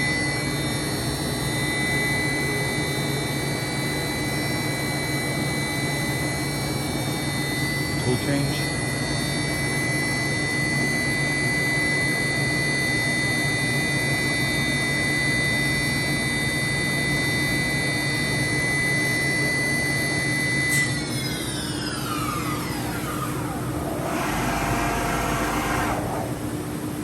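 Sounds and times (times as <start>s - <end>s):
machine spindle whining: 19.9s - 27.0s.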